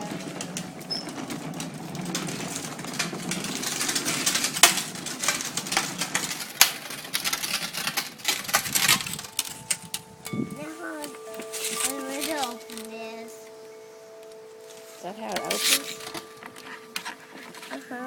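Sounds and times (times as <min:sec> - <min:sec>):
plastic clicks and rattles: 0:00.0 - 0:10.4, 0:14.2 - 0:18.0.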